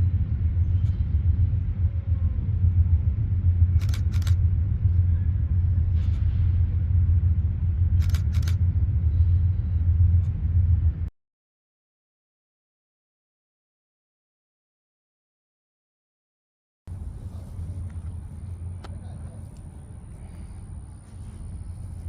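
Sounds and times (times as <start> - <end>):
steady low rumble: 0.0 - 11.1, 16.9 - 22.0
camera shutter firing: 3.8 - 4.4, 8.0 - 8.6.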